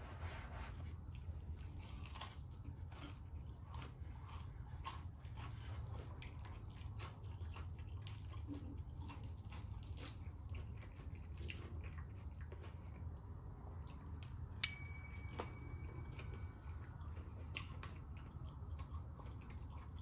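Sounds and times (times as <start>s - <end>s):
chewing crispy fried chicken: 1.0s - 14.6s, 16.2s - 20.0s
sharp ringing ping: 14.6s - 16.5s.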